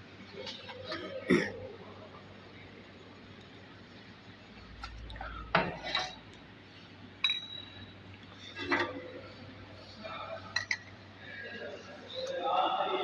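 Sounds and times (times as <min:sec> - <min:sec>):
metal objects clinking: 0:07.2 - 0:07.8.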